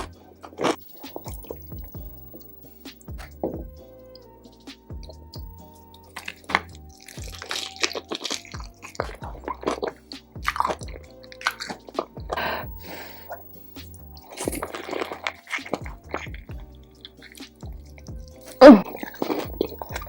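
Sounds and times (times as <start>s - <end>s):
background music: 0.0s - 20.0s
crunching and chewing: 0.0s - 20.0s
wet saucy squishing: 0.0s - 20.0s.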